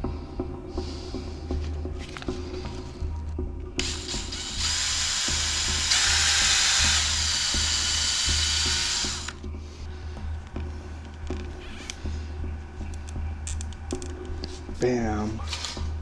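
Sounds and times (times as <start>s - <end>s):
electric drill boring into wood: 3.8s - 9.4s.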